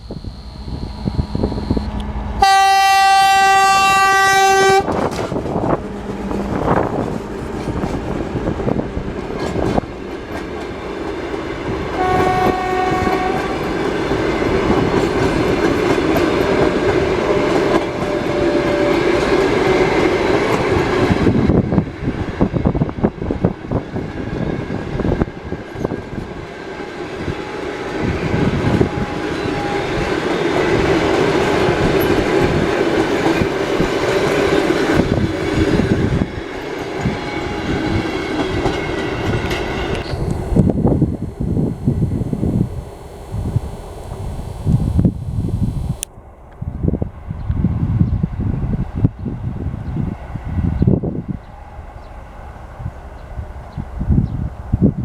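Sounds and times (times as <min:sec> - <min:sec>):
locomotive horn blasts: 0:00.0 - 0:05.2, 0:11.9 - 0:14.1
train rumbling past: 0:00.0 - 0:55.0.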